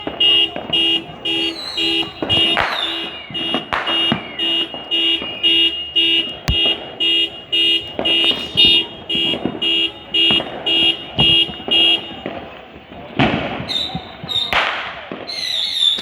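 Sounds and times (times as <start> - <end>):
car alarm two-tone beeping: 0.0 - 12.6
fireworks banging and crackling: 0.0 - 16.0.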